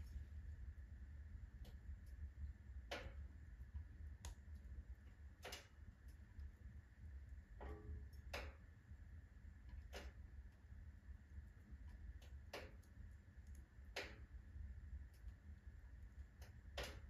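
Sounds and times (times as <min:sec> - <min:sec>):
low steady rumble: 0:00.0 - 0:17.0
sharp pops of burning wood: 0:16.4 - 0:17.0.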